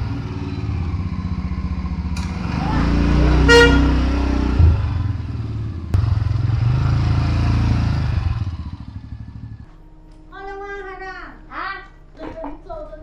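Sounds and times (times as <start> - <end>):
small vehicle engine running: 0.0 - 9.8.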